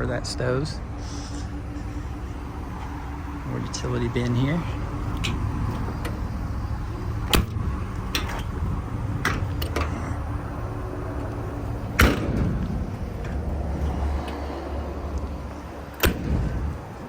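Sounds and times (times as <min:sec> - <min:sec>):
steady low hum: 0:00.0 - 0:17.0
metal door banging shut: 0:12.0 - 0:12.6.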